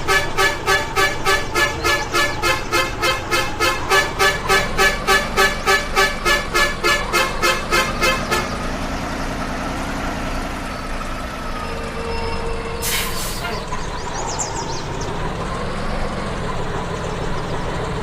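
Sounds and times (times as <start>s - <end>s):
rapid horn-like beeping: 0.0s - 8.6s.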